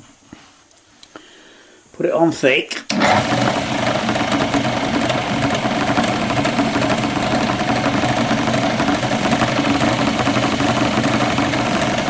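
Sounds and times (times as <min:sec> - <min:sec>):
lathe motor humming: 0:02.9 - 0:12.0.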